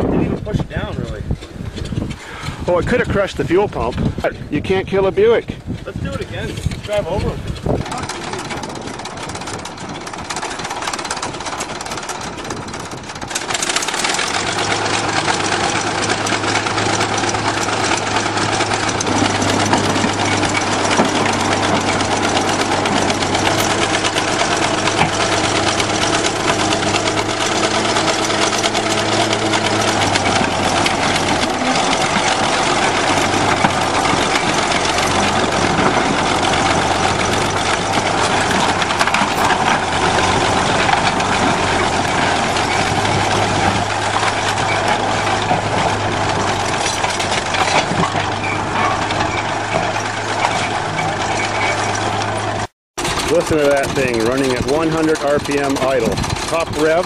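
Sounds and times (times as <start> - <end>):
bulldozer engine running under load: 0.0 - 57.0
rattling clatter: 0.0 - 57.0.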